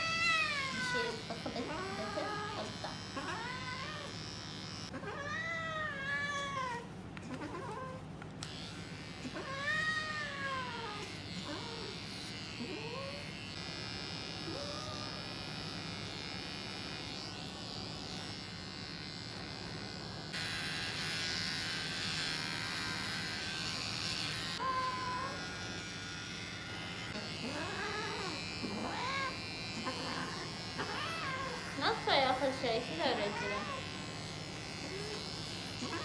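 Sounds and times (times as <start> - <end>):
cat crying: 0.0 - 4.2, 4.9 - 6.8, 27.4 - 31.8, 35.8 - 36.0
electric hair clippers buzzing: 0.0 - 5.4, 8.2 - 36.0.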